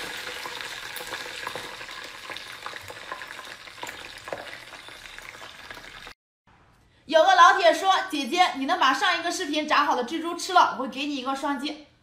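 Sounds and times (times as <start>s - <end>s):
hot oil sizzling and popping: 0.0s - 6.2s.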